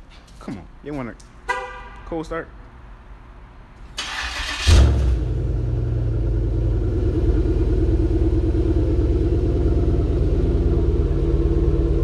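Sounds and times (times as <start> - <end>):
car engine starting and idling: 3.8 - 12.0.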